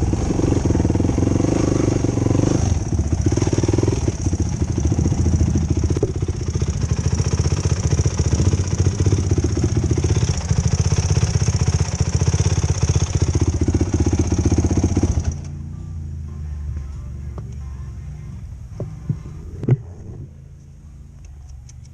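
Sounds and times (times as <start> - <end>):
quad engine revving: 0.0 - 17.2
quad engine idling: 0.0 - 21.9.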